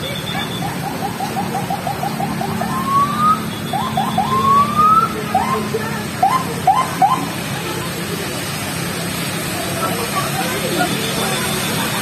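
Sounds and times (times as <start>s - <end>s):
electronic siren chirps: 0.0s - 7.3s
siren rising whoops: 0.6s - 7.2s.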